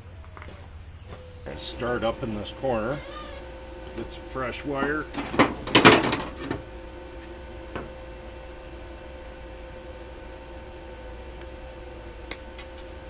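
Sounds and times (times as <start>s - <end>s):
welder humming: 0.0s - 13.0s
handling noise: 4.8s - 8.1s
click: 12.3s - 12.8s.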